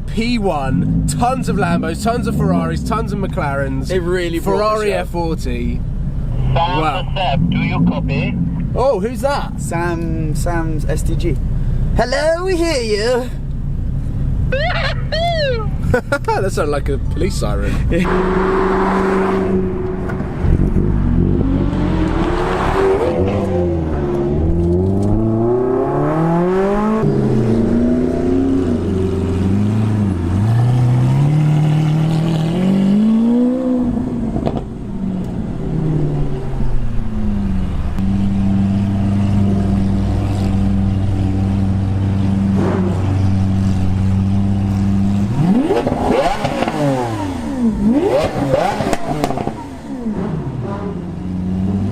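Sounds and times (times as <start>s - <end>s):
sports car engine revving: 17.9s - 51.9s.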